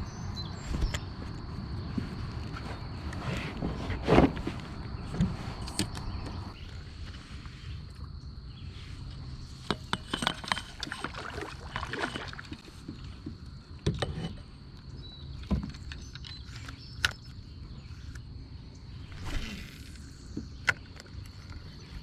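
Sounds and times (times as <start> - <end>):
moving water rumble: 0.0 - 13.8.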